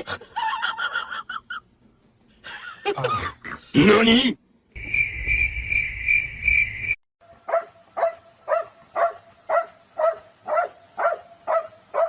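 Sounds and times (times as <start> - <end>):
dog barking: 7.4 - 12.0.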